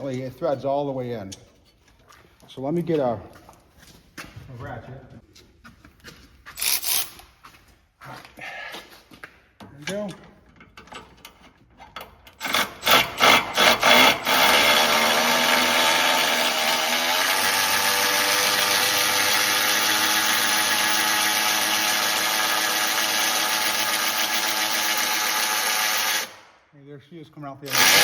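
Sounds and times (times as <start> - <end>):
electric ratchet whirring: 6.6 - 7.2, 12.4 - 26.5, 27.7 - 28.0.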